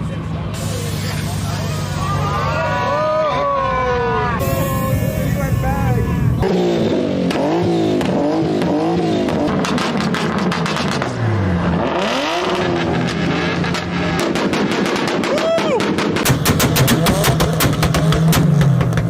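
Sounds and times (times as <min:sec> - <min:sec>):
car engine revving: 0:04.4 - 0:19.0
exhaust pops and bangs: 0:08.0 - 0:11.2, 0:13.6 - 0:19.0.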